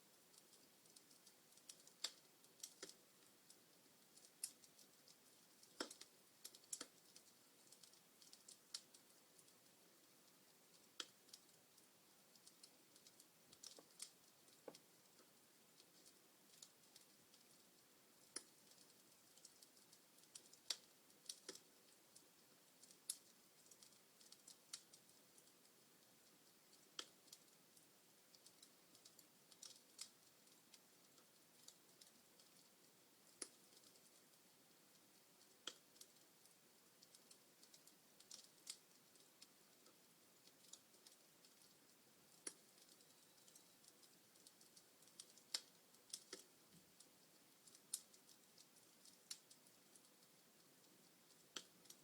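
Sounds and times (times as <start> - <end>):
faint steady hiss: 0.0 - 52.0
wood fire crackling and popping: 0.1 - 52.0.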